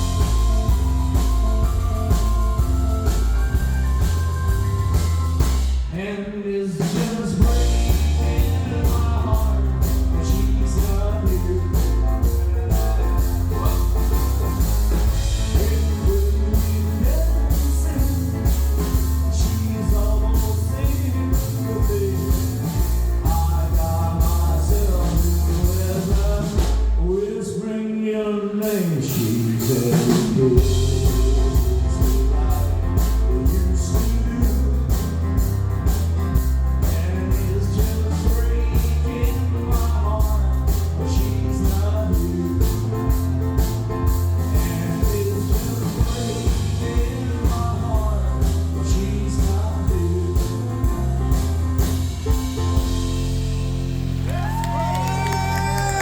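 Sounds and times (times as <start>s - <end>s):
live rock country band: 0.0s - 27.1s, 28.7s - 56.0s
person singing: 5.9s - 36.0s, 36.8s - 51.6s, 54.3s - 56.0s.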